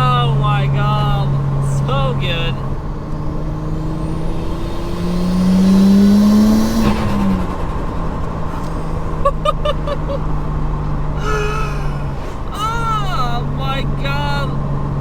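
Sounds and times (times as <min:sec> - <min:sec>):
car engine accelerating: 0:00.0 - 0:15.0
turbo whine: 0:01.7 - 0:09.3.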